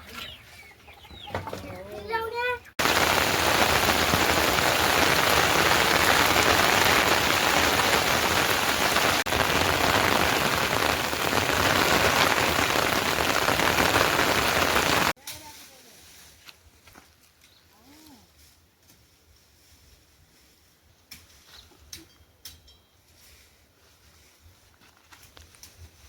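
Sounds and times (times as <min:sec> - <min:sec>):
heavy rain pouring: 0:02.8 - 0:15.2.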